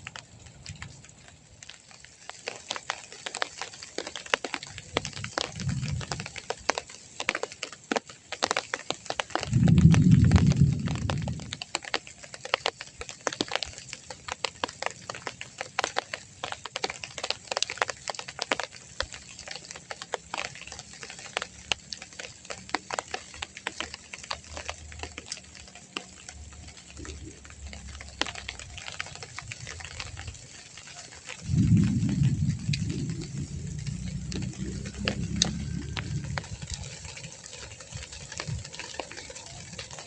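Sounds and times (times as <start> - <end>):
raindrops tapping: 0.0 - 40.0
low rumble: 9.5 - 11.6, 31.4 - 38.8.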